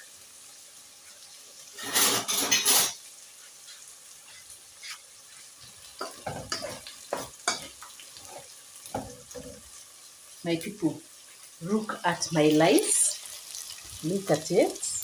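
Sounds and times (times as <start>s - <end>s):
spoon scraping metal pot: 1.8s - 3.0s.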